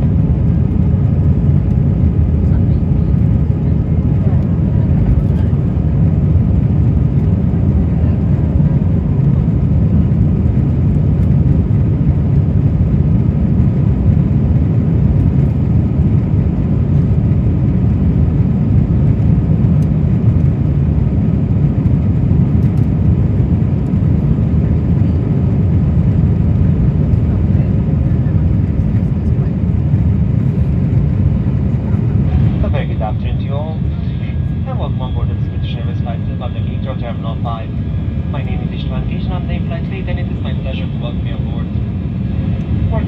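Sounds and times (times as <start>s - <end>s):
jet engine roar in cabin: 0.0s - 43.0s
faint hum: 27.2s - 43.0s.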